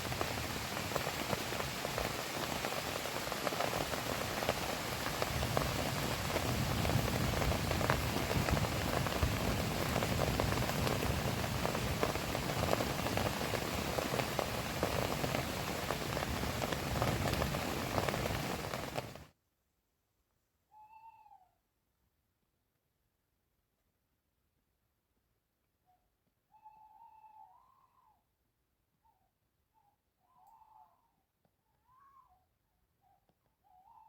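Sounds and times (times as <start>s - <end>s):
heavy rain on a tarp: 0.0s - 19.3s.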